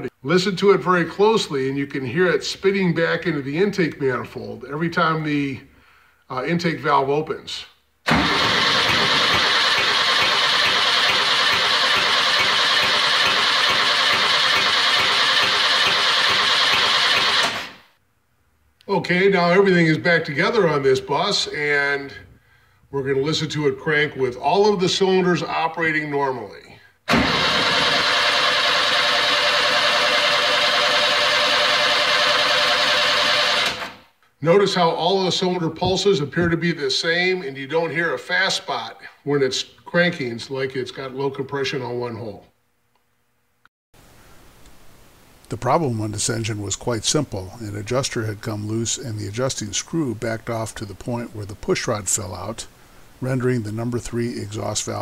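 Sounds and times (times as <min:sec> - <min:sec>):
engine cranking on starter: 0:08.1 - 0:17.9, 0:27.1 - 0:34.0.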